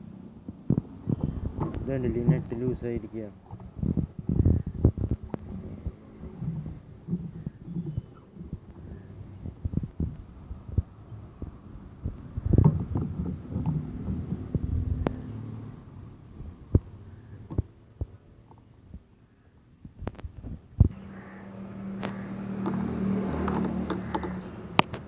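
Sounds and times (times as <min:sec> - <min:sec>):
engine hum: 0:00.0 - 0:25.0
hand tools clicking on metal: 0:22.0 - 0:25.0.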